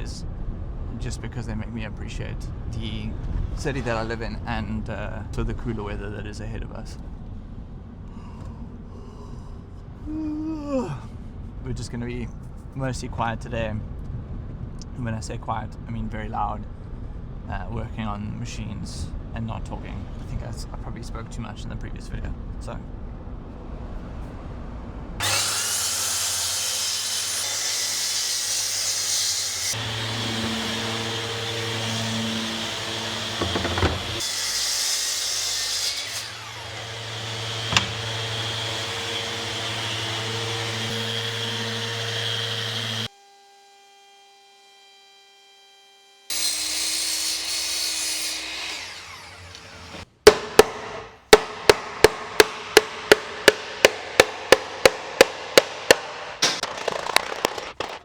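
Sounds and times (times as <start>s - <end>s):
power tools cutting wood: 25.2s - 50.1s
rapid sharp knocks: 50.3s - 57.9s.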